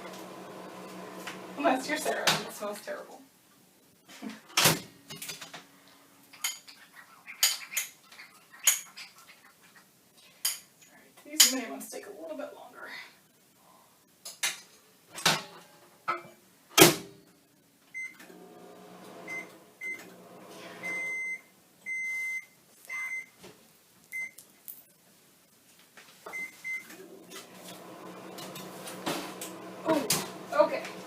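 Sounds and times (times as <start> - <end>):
microwave oven humming: 0.0 - 1.7, 18.2 - 21.4, 26.9 - 31.0
microwave keypad beeps: 19.3 - 20.0, 20.8 - 23.3, 26.3 - 26.9
kitchenware clanking: 27.0 - 31.0.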